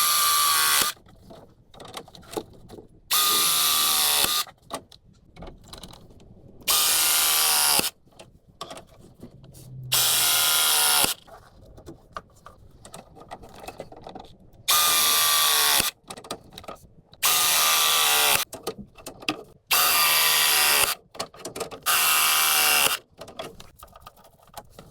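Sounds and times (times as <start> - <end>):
handheld power tool bursts: 0.0 - 1.0, 3.1 - 4.5, 6.7 - 8.0, 9.9 - 11.2, 14.7 - 16.0, 17.2 - 18.4, 19.7 - 21.0, 21.8 - 23.0
clicks and handling: 0.9 - 3.0, 4.2 - 6.4, 8.1 - 9.6, 11.2 - 14.7, 15.9 - 17.2, 18.4 - 19.6, 22.9 - 24.9.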